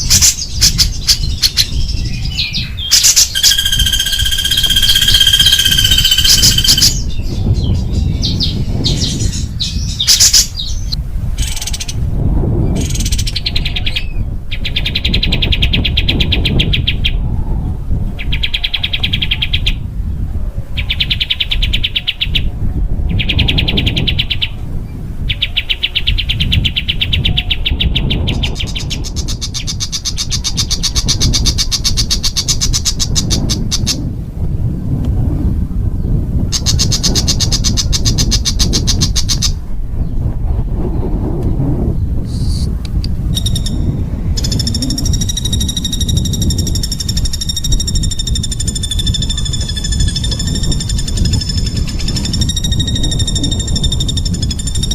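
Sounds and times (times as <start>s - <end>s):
songbird harsh trills: 0.0s - 12.0s, 43.3s - 54.9s
steady low rumble: 0.0s - 21.2s, 22.0s - 54.9s.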